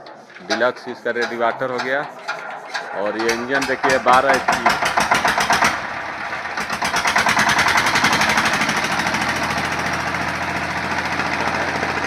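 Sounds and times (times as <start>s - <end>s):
diesel engine knocking: 0.5s - 12.0s.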